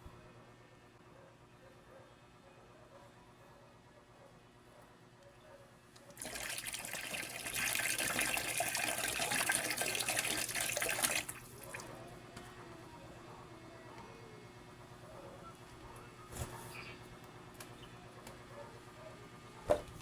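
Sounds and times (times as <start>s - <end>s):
water running from tap: 6.1s - 11.8s.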